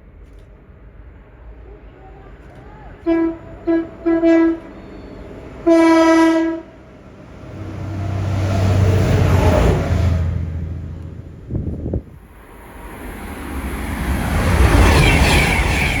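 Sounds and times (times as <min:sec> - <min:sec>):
train rumbling past: 0:00.0 - 0:16.0
train horn blasts: 0:03.0 - 0:06.9.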